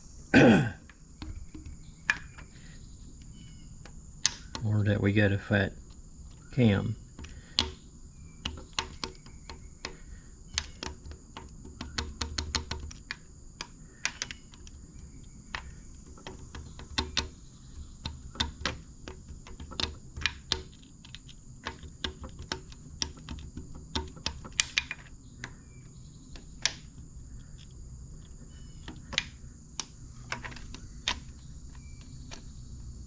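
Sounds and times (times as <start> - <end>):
crickets chirring: 0.0 - 33.0.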